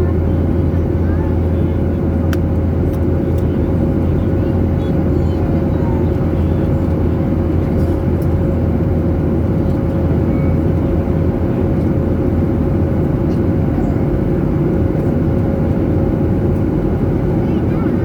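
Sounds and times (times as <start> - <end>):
jet cabin engine drone: 0.0 - 18.0.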